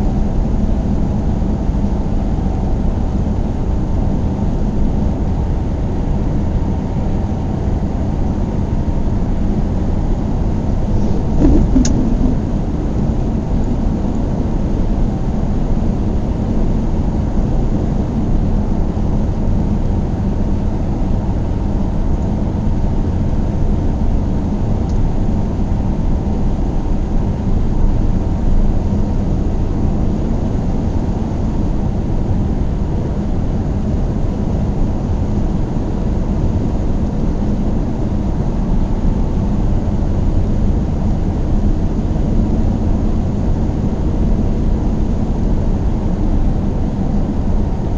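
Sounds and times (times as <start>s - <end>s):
faint steady hum: 6.9s - 47.9s
car tyres and engine rumble: 10.7s - 13.7s.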